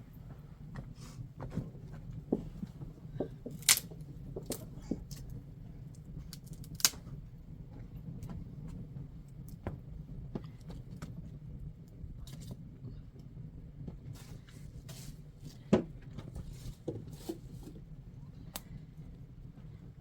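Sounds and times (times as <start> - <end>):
small hard objects clicking: 3.5 - 3.9.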